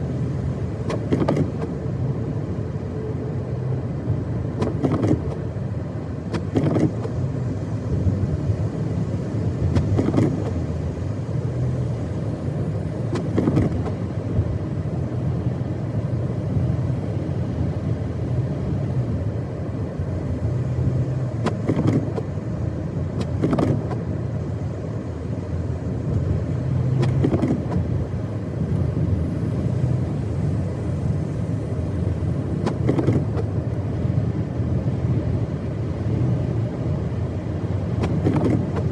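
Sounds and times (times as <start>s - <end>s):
car engine and tyres rumbling: 0.0s - 38.9s
short thumps: 21.4s - 22.3s, 32.6s - 33.5s, 38.0s - 38.9s.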